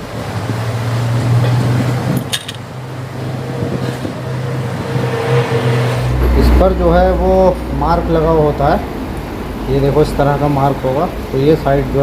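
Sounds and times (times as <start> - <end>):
workshop background noise: 0.0 - 5.4.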